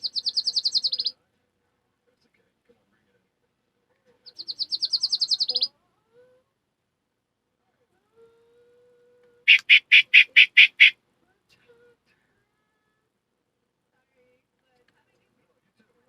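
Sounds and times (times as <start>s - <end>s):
bird fast high trill: 0.0s - 1.1s, 4.4s - 5.7s, 9.5s - 10.9s
bird harsh scratchy notes: 9.5s - 10.9s.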